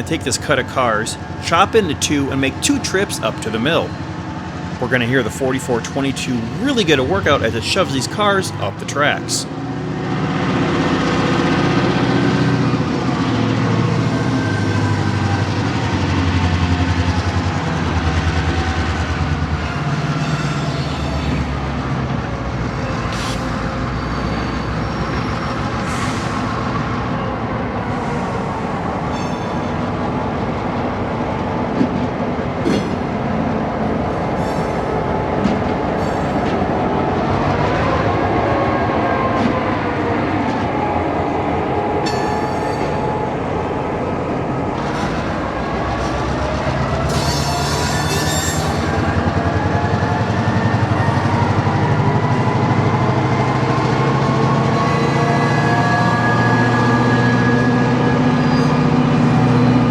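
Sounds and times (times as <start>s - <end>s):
diesel locomotive engine working hard: 0.0s - 59.9s
high wavering squeal: 47.1s - 49.0s.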